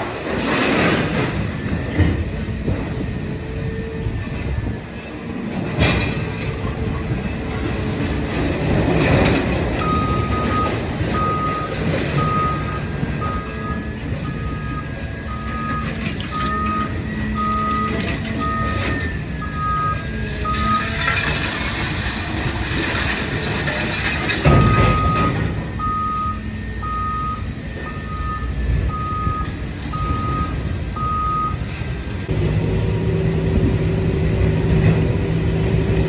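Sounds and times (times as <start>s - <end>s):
heavy machinery running: 0.0s - 36.0s
reversing alarm beeping: 8.7s - 33.6s
scrap metal clanks: 20.2s - 25.7s.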